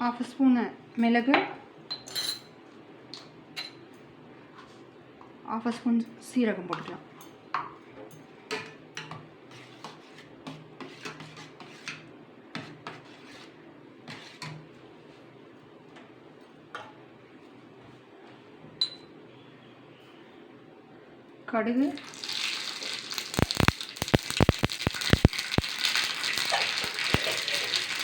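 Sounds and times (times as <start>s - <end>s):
metal utensils clinking: 22.8s - 28.0s.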